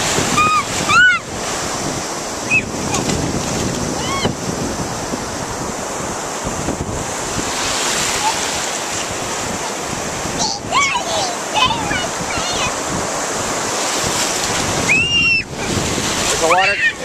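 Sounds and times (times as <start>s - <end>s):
surf washing in: 0.0s - 17.0s
wind buffeting microphone: 0.0s - 17.0s
high-pitched cries: 0.4s - 1.3s, 4.0s - 4.3s.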